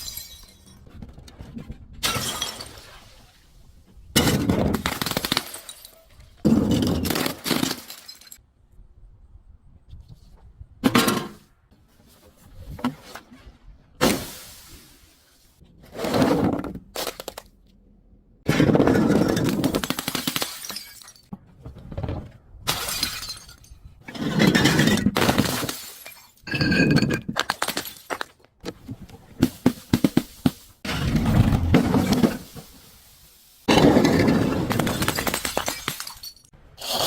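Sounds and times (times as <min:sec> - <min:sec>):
glass bottles smashing: 0:00.0 - 0:00.8, 0:04.3 - 0:08.4, 0:19.1 - 0:21.3, 0:22.7 - 0:23.8, 0:24.5 - 0:28.1, 0:33.8 - 0:36.5
glass shards crunching: 0:35.0 - 0:36.5.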